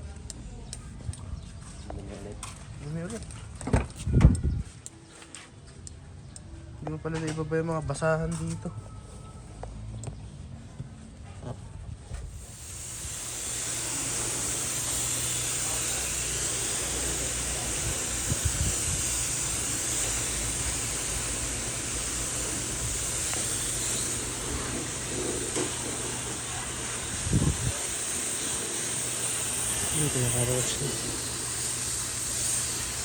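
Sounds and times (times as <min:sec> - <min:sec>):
loud steady hiss: 0:12.3 - 0:33.0.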